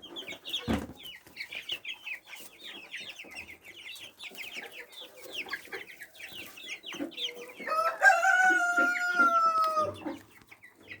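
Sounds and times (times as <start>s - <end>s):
chickens clucking: 0.0s - 11.0s
rooster crowing: 7.7s - 10.0s.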